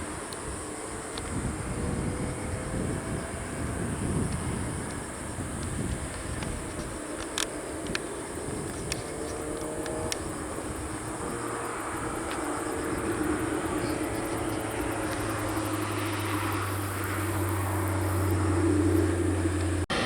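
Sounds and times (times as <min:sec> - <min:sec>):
aircraft engine approaching: 0:00.0 - 0:20.0
low hum: 0:09.9 - 0:20.0.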